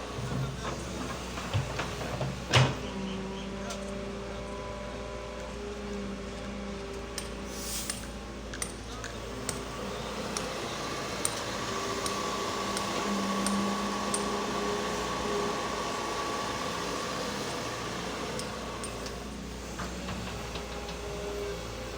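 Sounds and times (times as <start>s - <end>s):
excavator engine hum: 0.0s - 21.9s
hydraulic whine: 9.1s - 21.9s.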